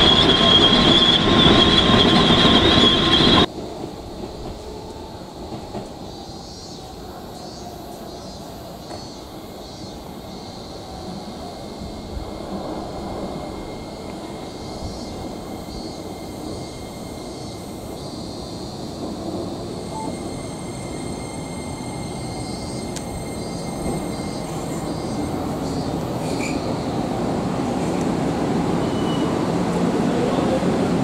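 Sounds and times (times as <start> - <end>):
thin high whine: 0.0 - 3.5
train rumbling on rails: 0.0 - 31.0.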